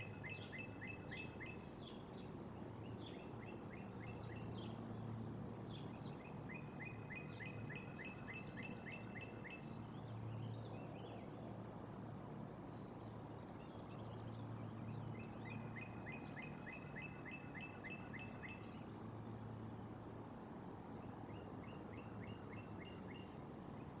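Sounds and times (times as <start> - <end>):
bird chirping: 0.0 - 2.3, 5.7 - 11.2, 12.7 - 19.0
low outdoor background hum: 0.0 - 24.0.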